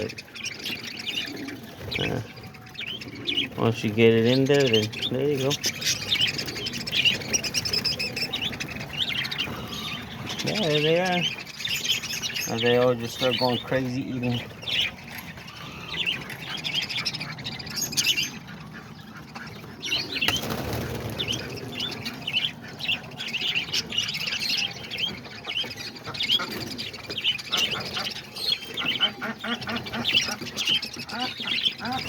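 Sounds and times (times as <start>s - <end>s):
parakeets chirping: 0.0s - 32.0s
wings flapping: 18.4s - 24.2s.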